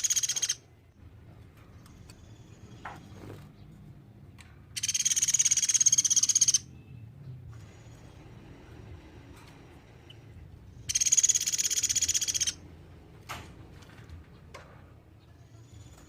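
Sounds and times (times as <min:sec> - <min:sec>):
woodpecker trilling: 0:00.0 - 0:00.7, 0:04.8 - 0:06.7, 0:10.8 - 0:12.6.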